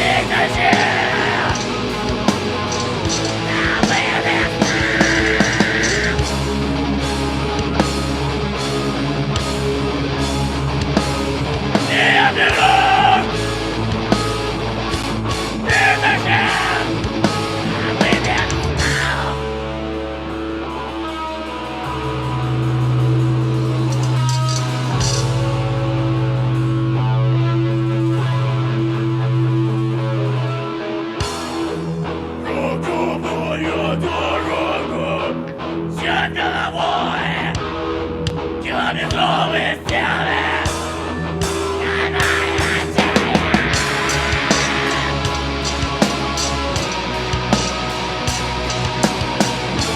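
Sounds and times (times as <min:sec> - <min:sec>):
heavy metal band playing: 0:00.0 - 0:49.9
held guitar and bass notes: 0:00.0 - 0:49.9.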